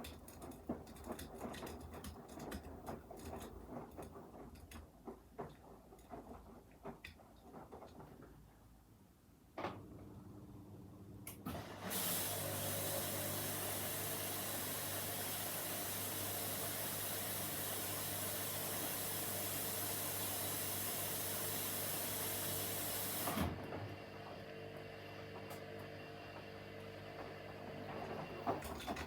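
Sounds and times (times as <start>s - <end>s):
water hissing into machine: 11.8s - 23.3s.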